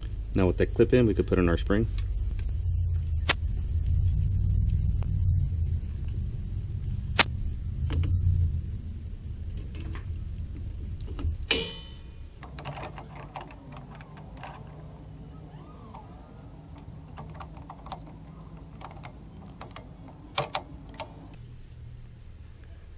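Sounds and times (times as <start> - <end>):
metal clicks: 11.0 - 21.4
ringing metallic clank: 11.5 - 21.2.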